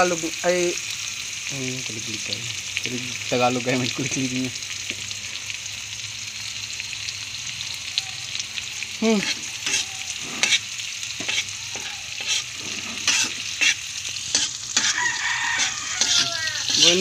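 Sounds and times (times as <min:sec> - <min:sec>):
food sizzling in hot oil: 0:00.0 - 0:17.0
metal spatula scraping pan: 0:09.2 - 0:17.0.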